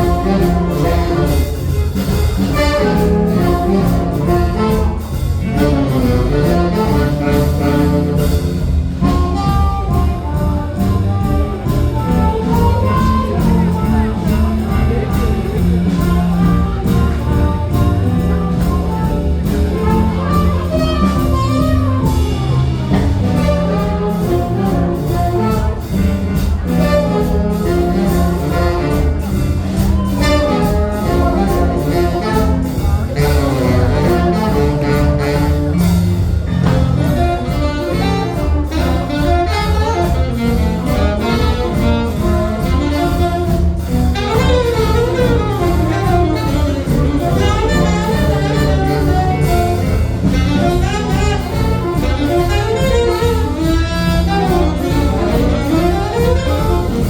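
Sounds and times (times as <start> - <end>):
live jazz band playing: 0.0 - 57.0.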